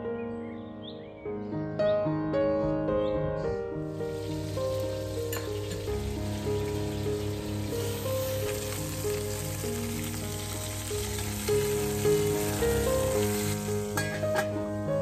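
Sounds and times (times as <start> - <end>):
soft background music: 0.0 - 15.0
chicken sizzling in hot oil: 3.9 - 15.0.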